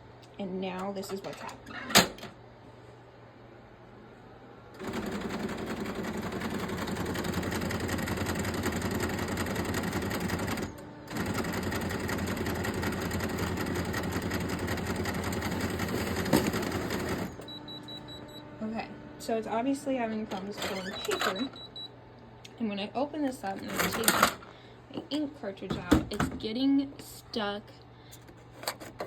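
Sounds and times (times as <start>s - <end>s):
printer mechanical rattle and grinding: 4.8s - 17.5s, 20.3s - 21.6s, 23.4s - 24.5s.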